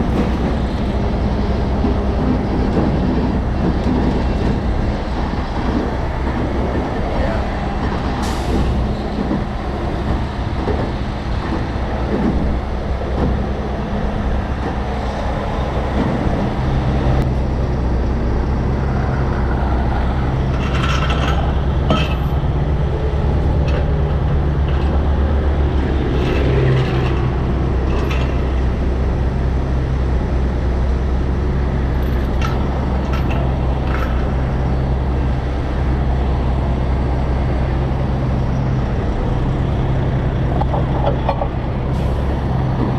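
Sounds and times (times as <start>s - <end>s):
diesel truck engine running: 0.0s - 42.9s
metallic clicks and clanks: 20.5s - 22.4s.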